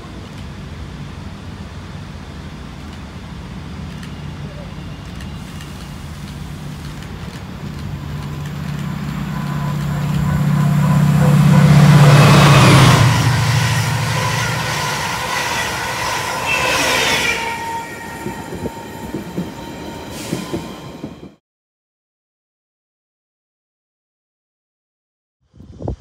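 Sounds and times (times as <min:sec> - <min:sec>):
train passing with loud hum: 0:00.0 - 0:21.4
train wheel squeal: 0:08.2 - 0:21.4.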